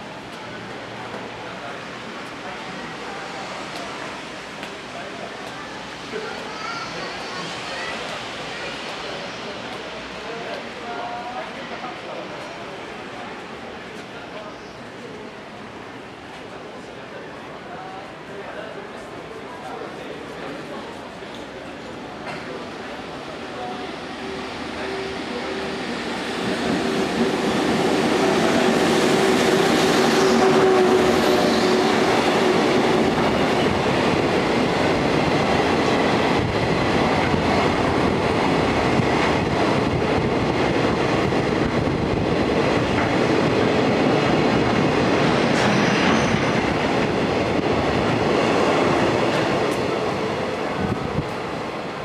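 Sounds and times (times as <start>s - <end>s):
electric locomotive hum: 23.8s - 52.0s.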